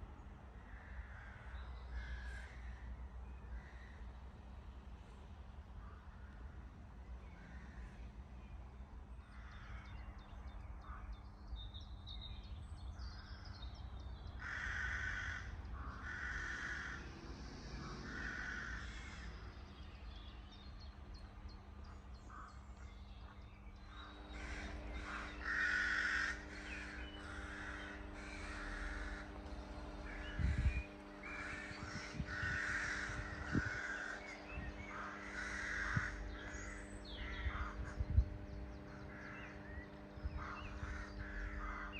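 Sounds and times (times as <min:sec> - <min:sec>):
steady low hum: 0:00.0 - 0:41.9
crow cawing: 0:00.6 - 0:02.9, 0:03.5 - 0:04.1, 0:09.3 - 0:09.9, 0:14.4 - 0:19.4, 0:22.3 - 0:22.6, 0:23.9 - 0:38.0, 0:38.9 - 0:41.9.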